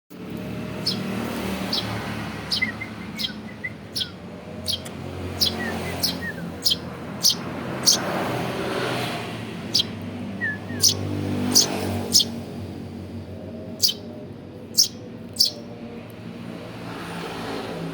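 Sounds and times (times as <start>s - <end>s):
sparrow chick chirping: 0.3s - 12.5s, 13.6s - 15.7s.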